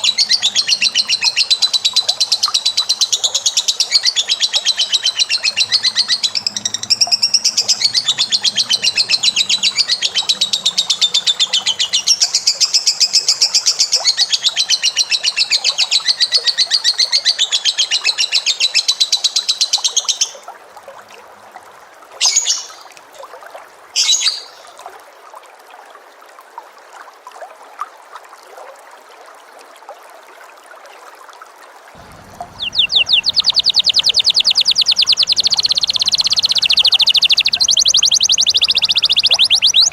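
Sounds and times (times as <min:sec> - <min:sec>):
songbird rapid trill: 0:00.0 - 0:16.5, 0:32.0 - 0:39.9
songbird short chirps: 0:32.0 - 0:39.9.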